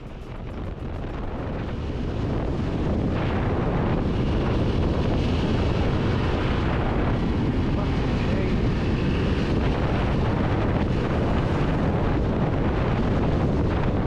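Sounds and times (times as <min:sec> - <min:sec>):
motorcycle engine running: 0:00.0 - 0:02.6
wind buffeting microphone: 0:00.0 - 0:14.0.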